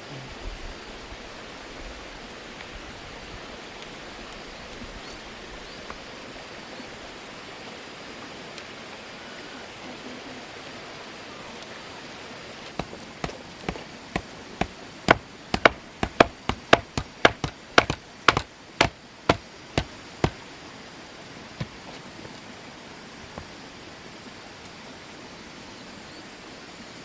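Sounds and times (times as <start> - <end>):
steady background hiss: 0.0 - 27.0
tool striking wood: 12.7 - 20.4, 21.6 - 22.1.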